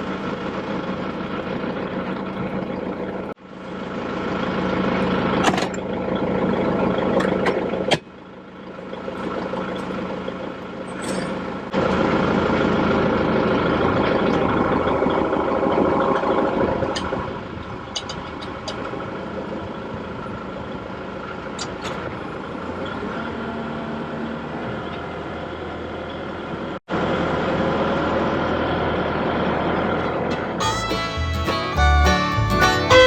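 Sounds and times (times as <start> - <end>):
engine running: 0.0 - 23.8, 24.6 - 33.0.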